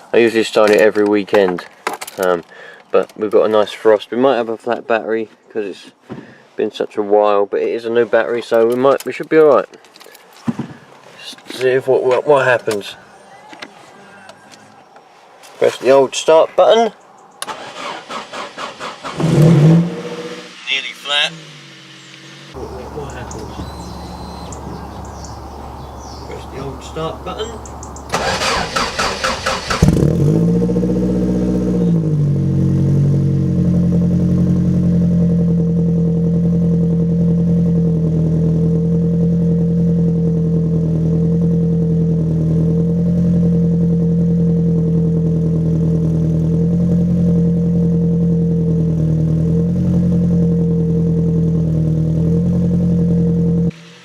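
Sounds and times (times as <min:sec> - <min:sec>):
car engine starting and idling: 0:17.2 - 0:53.9.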